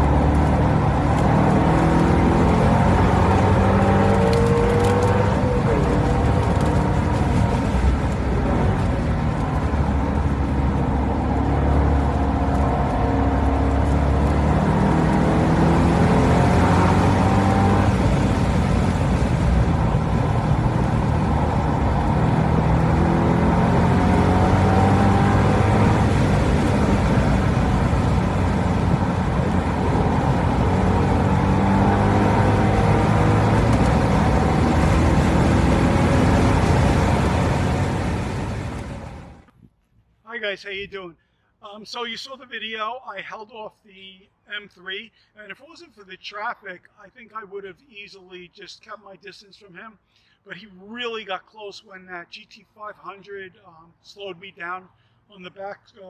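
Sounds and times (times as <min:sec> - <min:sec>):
race car engine accelerating: 0:00.0 - 0:39.5.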